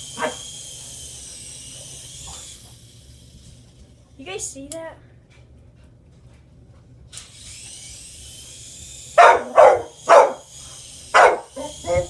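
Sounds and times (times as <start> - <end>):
toy helicopter motor whine: 0.0 - 3.9, 7.1 - 12.0
dog barking: 9.2 - 10.5, 11.2 - 12.0.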